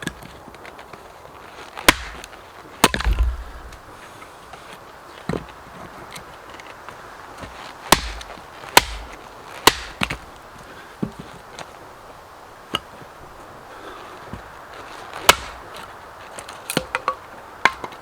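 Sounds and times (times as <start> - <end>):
axe chopping wood: 1.9 - 2.2, 3.0 - 3.8, 7.9 - 9.1, 9.7 - 10.2, 15.3 - 15.6.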